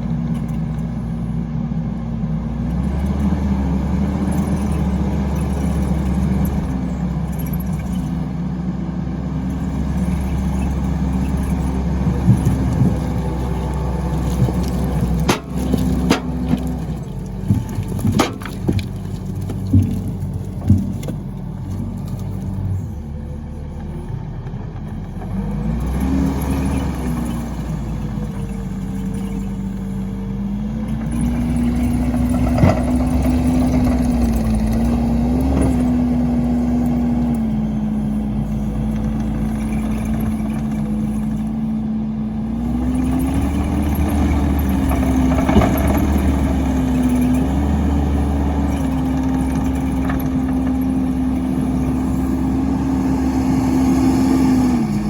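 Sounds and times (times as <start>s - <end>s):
log splitter engine running: 0.0s - 55.0s
sharp wood cracks: 12.6s - 22.5s.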